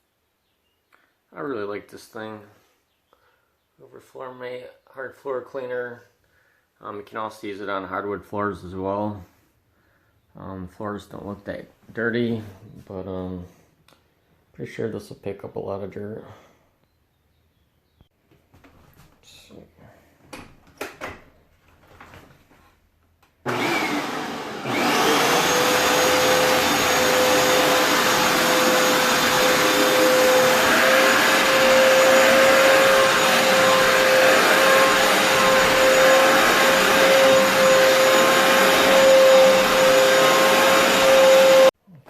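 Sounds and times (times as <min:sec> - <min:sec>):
floor cleaner motor whining: 0:23.5 - 0:41.7
suction noise: 0:23.5 - 0:41.7.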